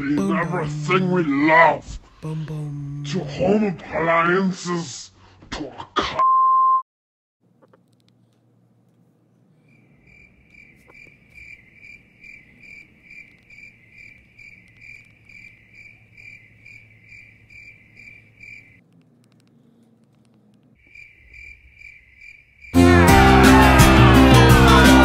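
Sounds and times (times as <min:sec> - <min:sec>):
cricket chirping: 0:09.6 - 0:22.8.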